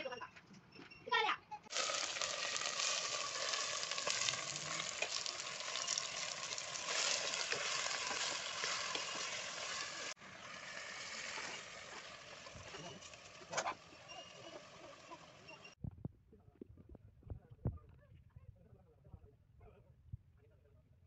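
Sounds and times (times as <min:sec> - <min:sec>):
steel ladle stirring: 0:01.7 - 0:13.5
chicken sizzling in hot oil: 0:01.7 - 0:15.8.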